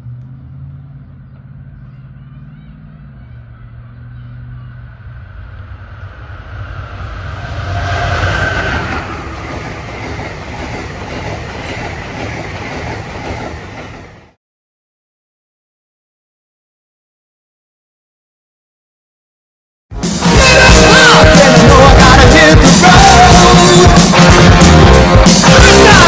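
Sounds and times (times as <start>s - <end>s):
train rumble and clickety-clack: 5.7s - 14.4s.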